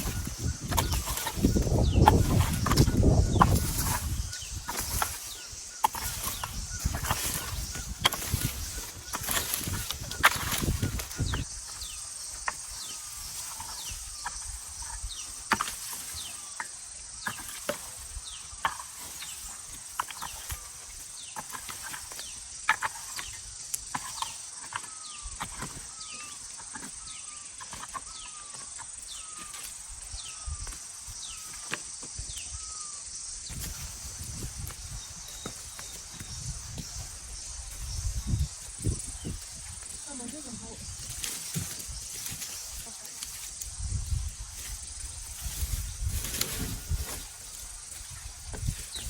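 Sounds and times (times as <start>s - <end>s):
sharp knocks and scrapes: 0.0s - 11.5s, 12.4s - 27.0s
birds chirping: 0.0s - 49.0s
high insect drone: 0.0s - 49.0s.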